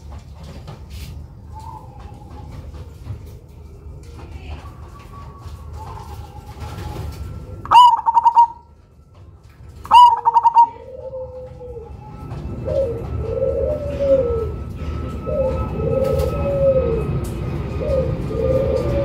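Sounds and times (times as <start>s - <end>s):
dove singing song phrases: 7.6s - 8.7s, 9.8s - 14.6s, 15.3s - 19.0s
soft low dove cooing: 9.8s - 19.0s.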